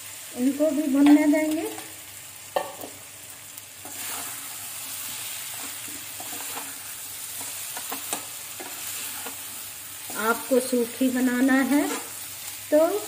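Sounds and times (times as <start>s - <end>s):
food sizzling in a pan: 0.0s - 13.0s
metal spatula scraping a pan: 3.8s - 12.6s.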